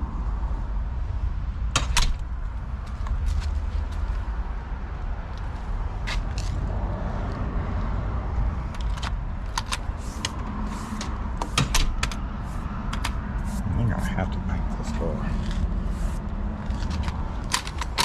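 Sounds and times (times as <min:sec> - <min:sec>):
door lock clicks and knocks: 0:01.7 - 0:02.3, 0:11.4 - 0:12.2
low rumble: 0:12.2 - 0:17.8.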